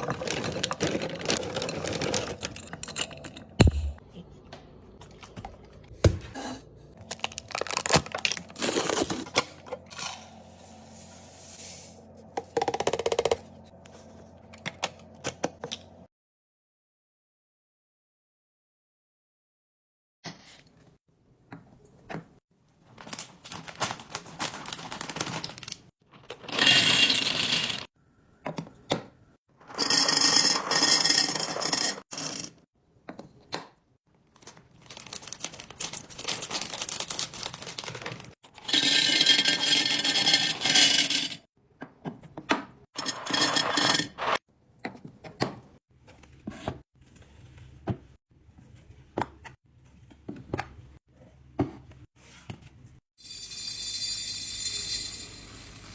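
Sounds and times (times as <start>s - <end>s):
small items clinking and scraping: 0.0s - 3.5s, 23.0s - 27.9s, 34.4s - 41.4s.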